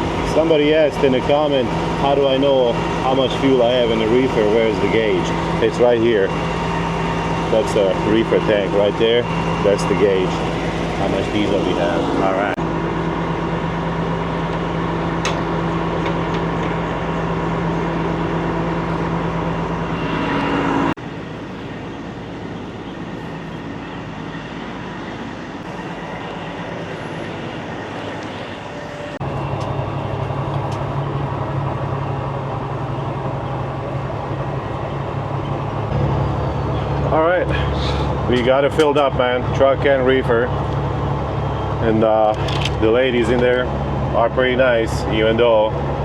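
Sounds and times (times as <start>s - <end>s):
engine hum: 0.0s - 46.0s.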